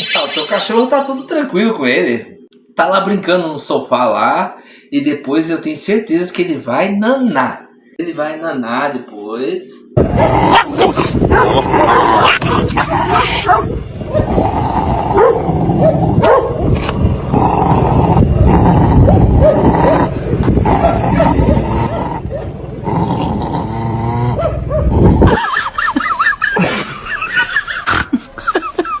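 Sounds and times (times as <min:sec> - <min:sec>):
dog barking and growling: 0:10.0 - 0:28.2
dog yipping and whimpering: 0:13.1 - 0:14.3.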